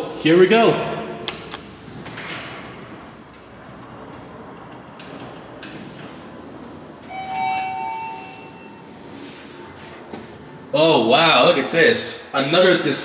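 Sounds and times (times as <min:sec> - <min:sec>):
elevator riding with low noise: 0:01.3 - 0:12.7
two-tone elevator chime: 0:07.1 - 0:09.0.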